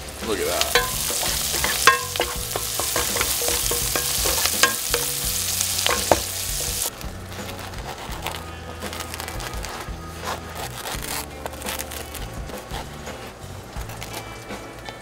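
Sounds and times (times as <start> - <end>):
food sizzling in a frying pan: 0.0 - 6.9
spatula tapping a pan: 0.6 - 6.9
knife sawing bread: 7.4 - 14.3.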